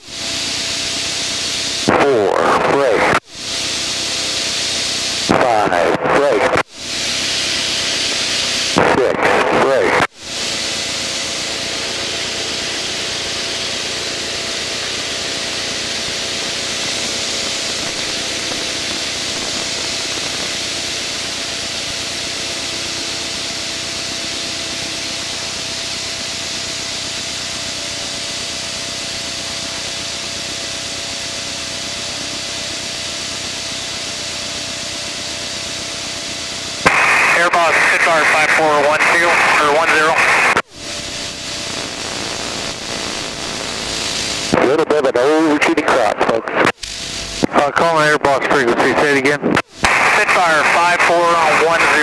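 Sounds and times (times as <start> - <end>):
aircraft engine drone: 0.0 - 52.0
rushing airflow: 6.7 - 22.0
faint steady hums: 36.7 - 52.0.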